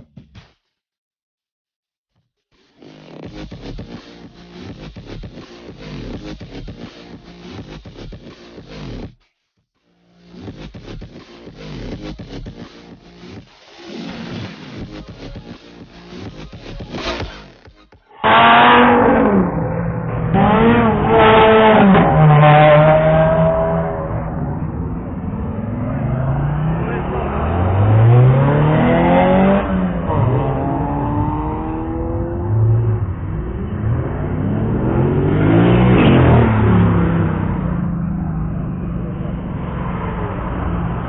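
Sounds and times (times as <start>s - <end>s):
sports car engines revving: 18.1s - 41.0s.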